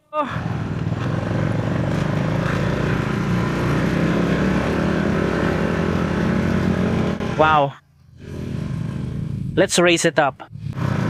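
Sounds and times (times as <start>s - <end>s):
motorcycle engine running: 0.3s - 9.6s.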